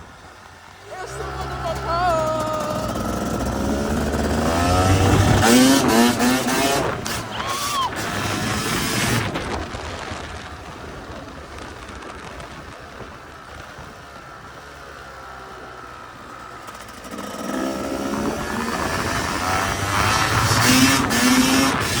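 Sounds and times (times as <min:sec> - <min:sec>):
dirt bike engine revving: 0:00.9 - 0:09.7, 0:16.6 - 0:22.0.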